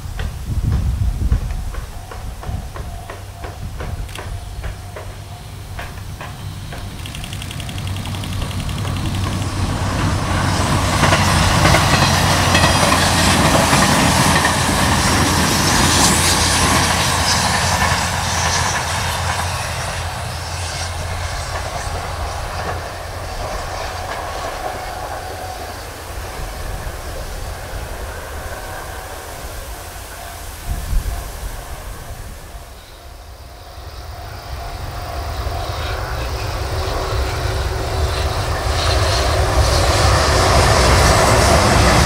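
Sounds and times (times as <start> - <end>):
train wheels clicking over rail joints: 0.0 - 32.1
train wheel-on-rail running noise: 0.0 - 42.0.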